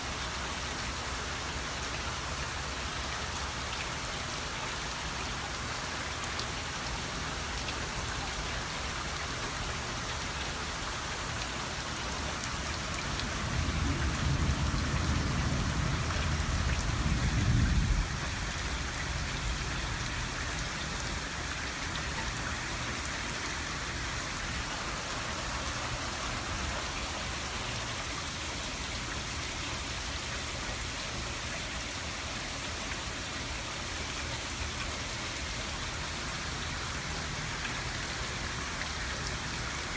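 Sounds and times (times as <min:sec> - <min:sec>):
heavy rain falling: 0:00.0 - 0:39.9
low rumble of thunder: 0:13.0 - 0:21.1.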